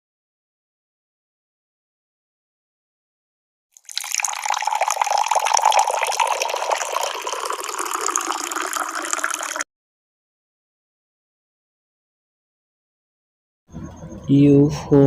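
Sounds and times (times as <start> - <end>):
tea pouring into vessel: 3.8 - 9.6.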